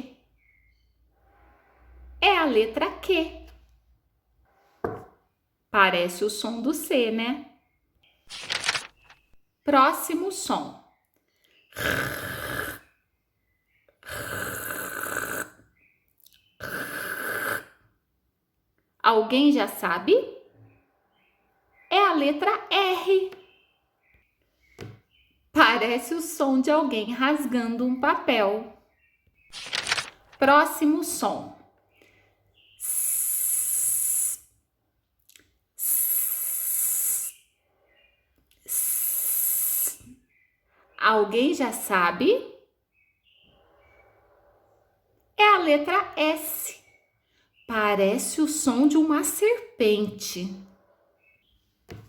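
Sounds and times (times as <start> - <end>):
woman making rasping throat sound: 11.7 - 12.8, 14.0 - 15.6, 16.4 - 17.8
person hissing sss: 32.8 - 34.5, 38.7 - 40.1.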